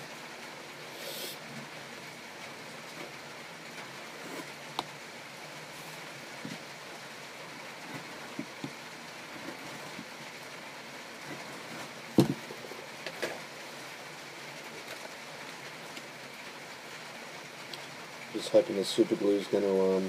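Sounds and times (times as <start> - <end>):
steady background hiss: 0.0 - 20.0
light knocks and taps: 12.2 - 12.4.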